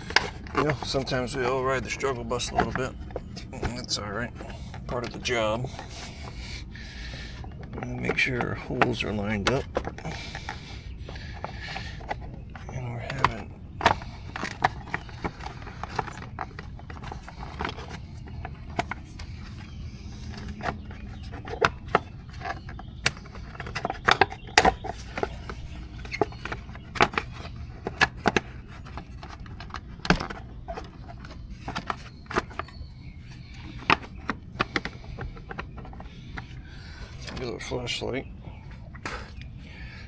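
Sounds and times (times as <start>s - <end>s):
plastic cover clicks and scrapes: 0.0s - 37.5s, 38.6s - 40.0s
steady low hum: 0.0s - 40.0s.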